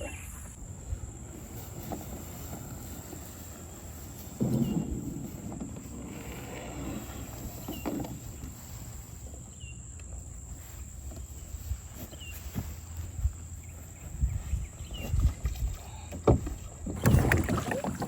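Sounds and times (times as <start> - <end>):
kayak thumps and knocks: 4.3 - 8.6, 15.0 - 18.0.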